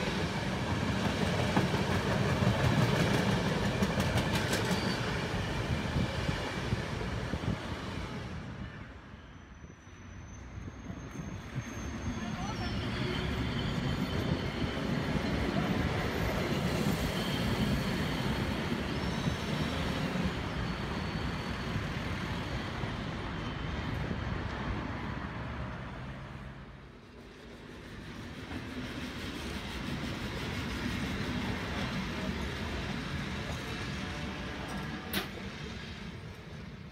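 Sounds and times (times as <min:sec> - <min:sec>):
train passing: 0:00.0 - 0:36.9.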